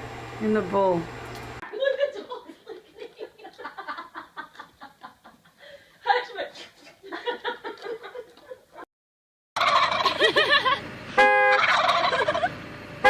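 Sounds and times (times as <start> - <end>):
soft chuckling laughter: 1.7 - 5.7, 10.0 - 10.8.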